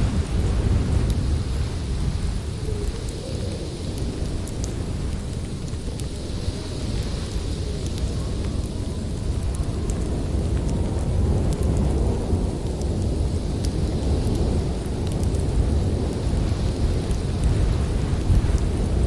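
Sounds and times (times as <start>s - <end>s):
storm wind rumbling: 0.0s - 19.0s
wood fire crackling: 0.0s - 19.0s.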